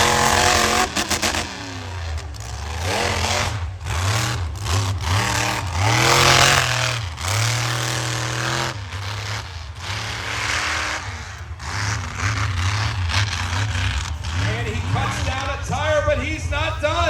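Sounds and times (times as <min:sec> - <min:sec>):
truck engine revving hard: 0:00.0 - 0:17.0.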